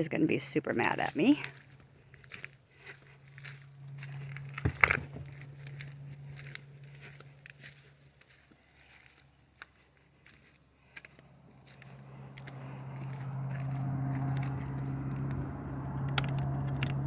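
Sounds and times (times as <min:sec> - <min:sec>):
low steady hum: 0:00.0 - 0:17.0
rustling and crinkling handling: 0:00.8 - 0:12.0.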